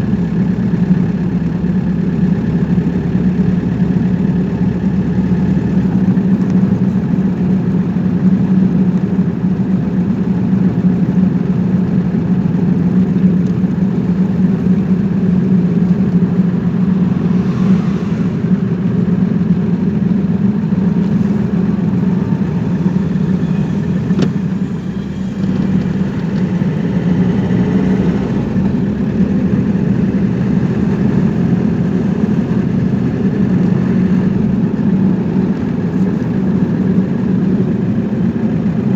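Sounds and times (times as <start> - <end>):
car engine drone: 0.0 - 38.9
road and tyre noise: 0.0 - 38.9.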